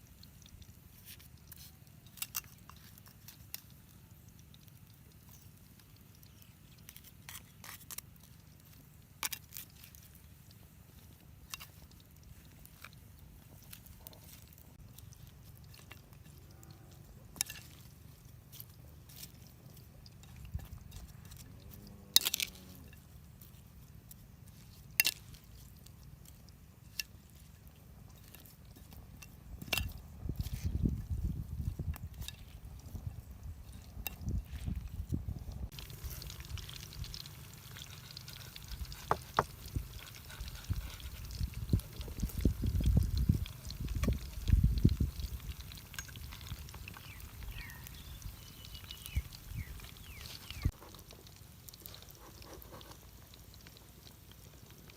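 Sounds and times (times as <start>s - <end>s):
person chewing: 0.0s - 30.9s, 35.7s - 54.9s
sharp crunches and clicks: 11.4s - 27.2s.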